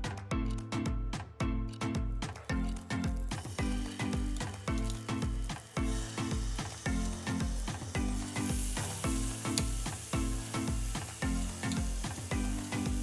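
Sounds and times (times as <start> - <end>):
background music with beat: 0.0 - 13.0
food sizzling in a pan: 3.4 - 13.0.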